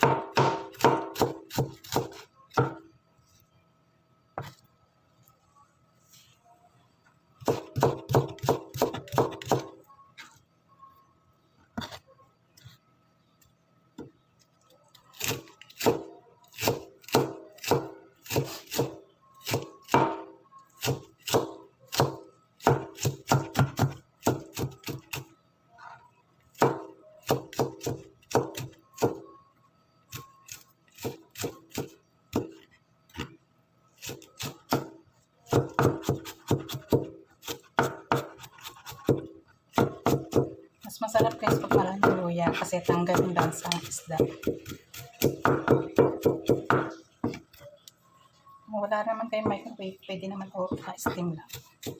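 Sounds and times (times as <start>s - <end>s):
knife chopping on cutting board: 0.0s - 2.8s, 41.2s - 47.4s.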